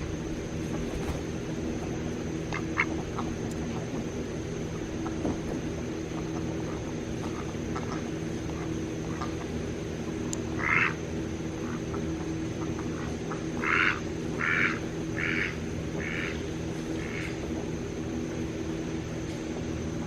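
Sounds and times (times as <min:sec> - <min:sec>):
duck quacking: 0:10.6 - 0:11.0, 0:12.6 - 0:16.4.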